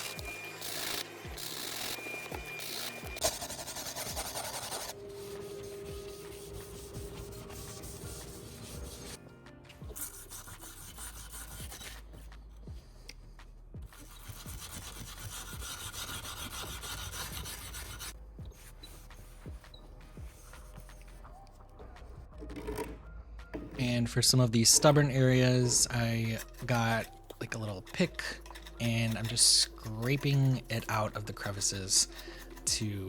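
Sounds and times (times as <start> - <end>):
brush scrubbing wood: 3.2 - 9.2, 14.0 - 18.2, 23.8 - 33.0.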